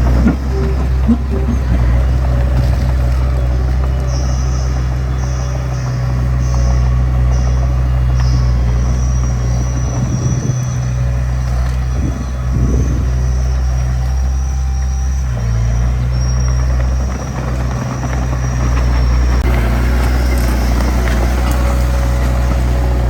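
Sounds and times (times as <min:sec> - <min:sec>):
high-pitched whine: 0:00.0 - 0:03.3
bulldozer diesel engine running: 0:00.0 - 0:23.0.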